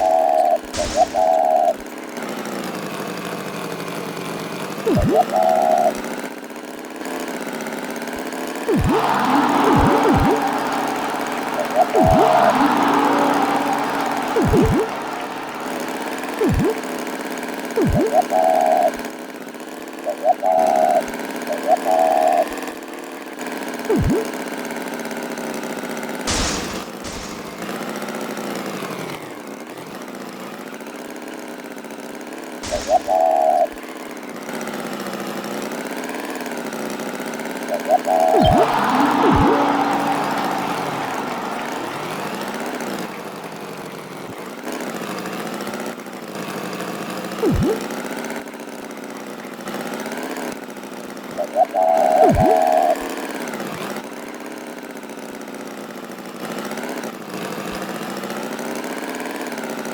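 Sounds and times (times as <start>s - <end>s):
steady engine drone: 0.0s - 1.7s, 8.7s - 17.1s, 26.3s - 27.9s, 32.6s - 33.7s, 37.8s - 44.4s
swooping whistle-like glide: 0.0s - 1.8s, 4.9s - 6.0s, 8.7s - 17.1s, 17.8s - 19.0s, 20.1s - 22.5s, 23.9s - 24.3s, 26.3s - 27.9s, 32.6s - 33.8s, 37.7s - 44.4s, 47.4s - 47.8s, 51.4s - 53.0s
springy boing: 0.8s - 1.7s, 4.9s - 5.9s, 8.7s - 16.8s, 17.8s - 18.5s, 23.9s - 24.3s, 26.3s - 27.7s, 32.6s - 33.6s, 38.2s - 43.5s, 47.4s - 47.8s.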